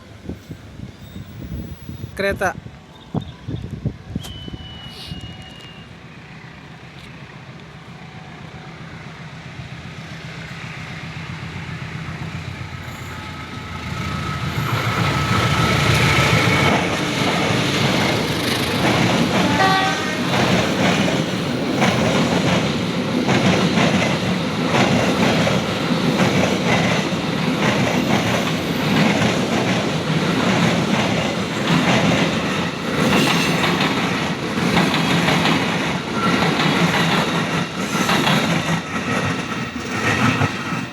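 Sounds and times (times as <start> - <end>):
train wheels clattering over rails: 9.7 - 40.9.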